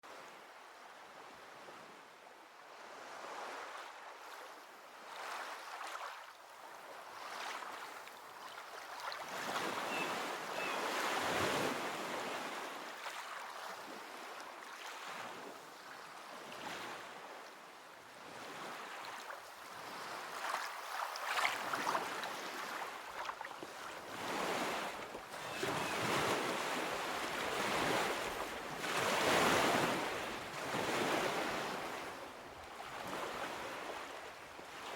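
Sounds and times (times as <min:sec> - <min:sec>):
ocean waves breaking: 0:19.7 - 0:34.9.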